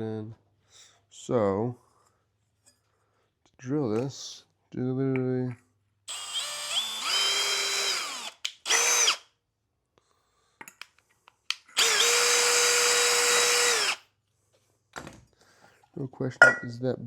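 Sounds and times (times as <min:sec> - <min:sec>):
drill clicks: 0:06.1 - 0:09.2, 0:11.5 - 0:14.0
power drill boring: 0:06.1 - 0:09.2, 0:11.7 - 0:14.0.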